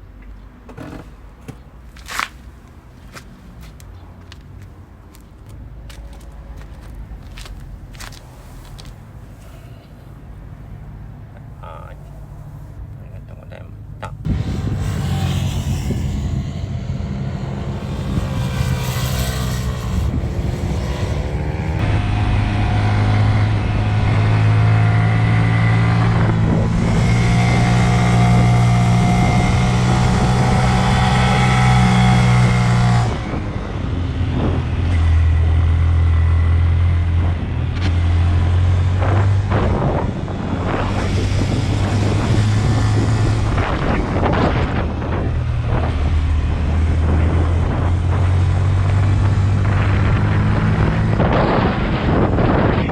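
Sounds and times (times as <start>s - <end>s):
motorcycle engine revving: 14.2s - 52.9s.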